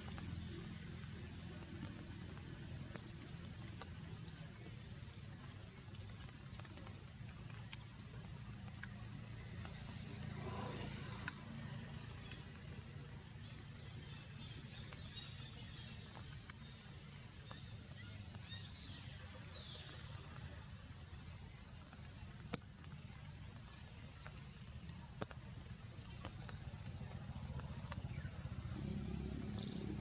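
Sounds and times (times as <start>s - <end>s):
rain falling: 0.0s - 30.0s
drops ticking: 0.1s - 10.3s, 10.9s - 18.9s, 21.1s - 30.0s
low rumble: 28.6s - 30.0s.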